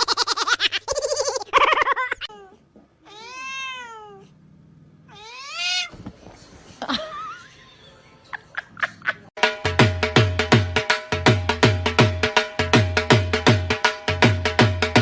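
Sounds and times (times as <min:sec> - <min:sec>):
cat meowing: 0:02.2 - 0:04.4, 0:05.1 - 0:06.0.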